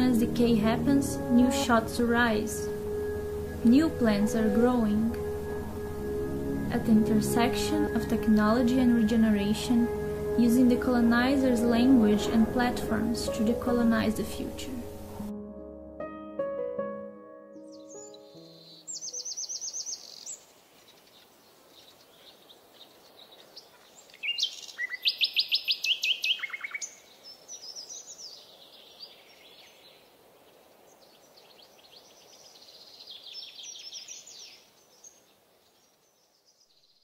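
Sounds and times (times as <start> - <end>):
faint steady hiss: 0.0 - 15.3, 18.4 - 37.0
birds singing rapid trills: 17.7 - 37.0.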